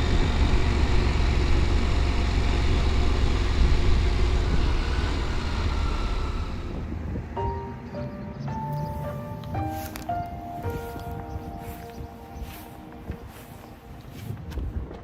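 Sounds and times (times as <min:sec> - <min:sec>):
low engine rumble: 0:00.0 - 0:15.0
music: 0:07.0 - 0:15.0.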